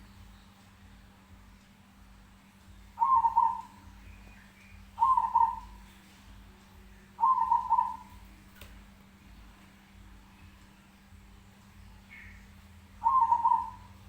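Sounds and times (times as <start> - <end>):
bird calling: 3.0 - 6.0, 7.1 - 8.2, 12.0 - 14.0.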